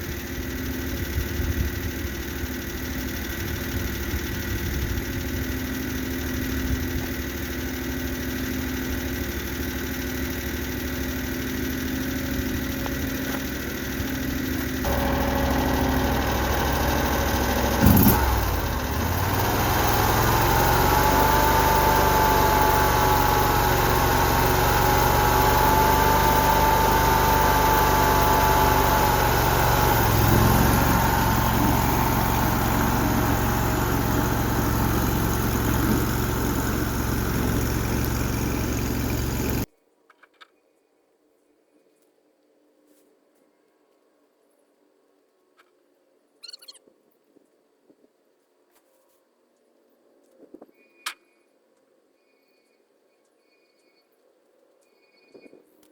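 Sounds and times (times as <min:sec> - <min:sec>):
skid steer engine running: 0:00.0 - 0:39.7
steady whine: 0:12.2 - 0:39.7.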